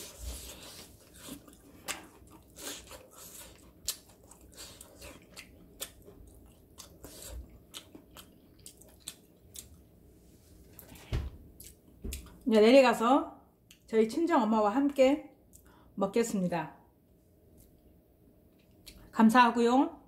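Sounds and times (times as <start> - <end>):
person chewing crispy food: 0.0 - 9.9.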